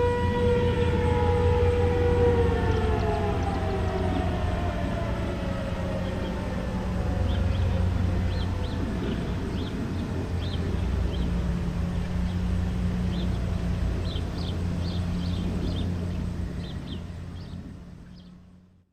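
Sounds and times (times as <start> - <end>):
steady low drone: 0.0 - 18.8
small birds chirping: 5.8 - 18.6.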